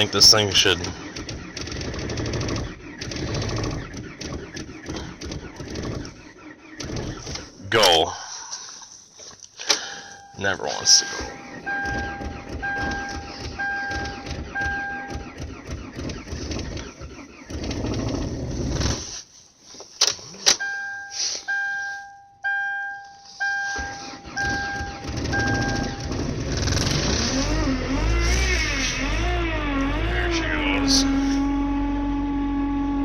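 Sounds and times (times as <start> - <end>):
car engine cranking and starting: 0.0 - 8.1, 9.2 - 19.3, 23.4 - 33.0
warning chime dinging: 9.8 - 15.3, 20.6 - 26.2.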